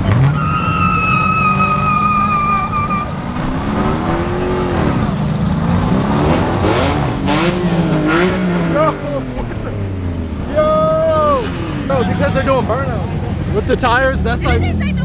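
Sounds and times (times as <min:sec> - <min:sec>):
tire squeal: 0:00.0 - 0:05.9, 0:10.4 - 0:15.0
car engine revving: 0:00.0 - 0:15.0.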